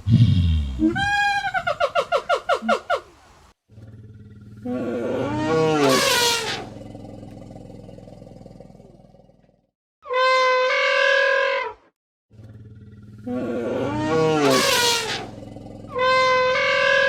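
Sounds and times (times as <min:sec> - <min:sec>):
animal roaring: 0:03.7 - 0:09.7, 0:12.3 - 0:17.0
horn-like animal call: 0:04.6 - 0:09.3, 0:10.0 - 0:11.8, 0:13.2 - 0:17.0.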